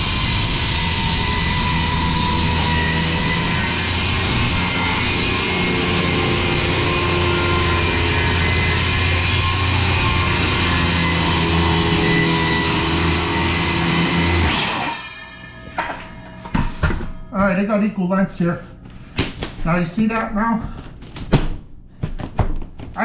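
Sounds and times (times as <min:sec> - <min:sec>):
circular saw cutting wood: 0:00.0 - 0:15.6.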